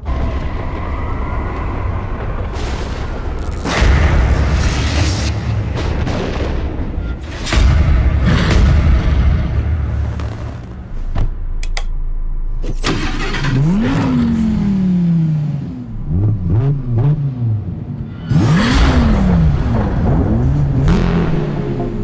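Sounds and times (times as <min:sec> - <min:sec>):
clicks: 0:11.6 - 0:12.0
car engine starting and revving: 0:12.7 - 0:22.0.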